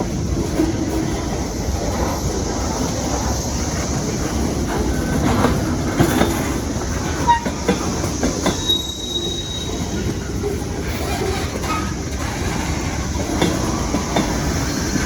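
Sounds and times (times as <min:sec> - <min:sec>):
freight train cars rumbling: 0:00.0 - 0:15.0
wheels clicking over rail joints: 0:03.8 - 0:15.0
wheel squeals: 0:07.1 - 0:13.1.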